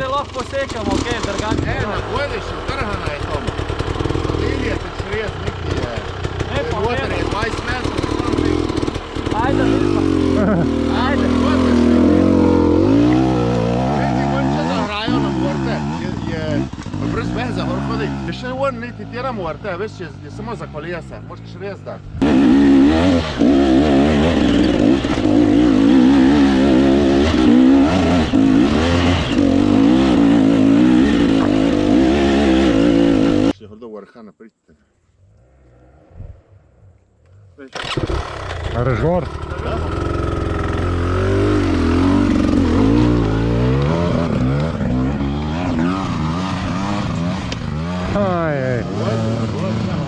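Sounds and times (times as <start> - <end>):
dirt bike engine revving: 0.0 - 21.4, 22.0 - 33.6, 37.8 - 50.0.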